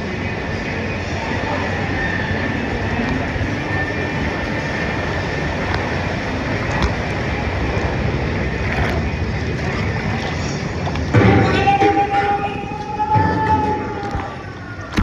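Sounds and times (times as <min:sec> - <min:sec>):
wind on microphone: 0:00.0 - 0:12.0
rushing whitewater: 0:00.0 - 0:12.1.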